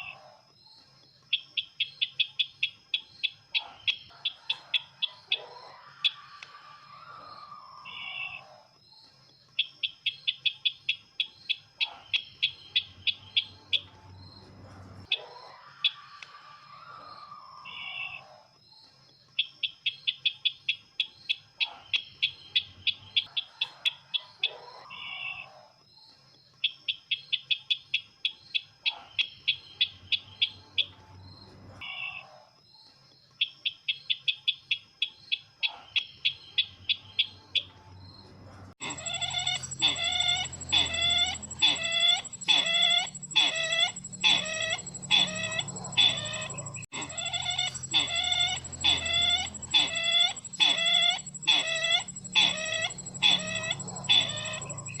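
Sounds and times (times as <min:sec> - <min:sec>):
recorded bird chirping: 0:00.0 - 0:55.0
lower bird calls: 0:38.8 - 0:55.0.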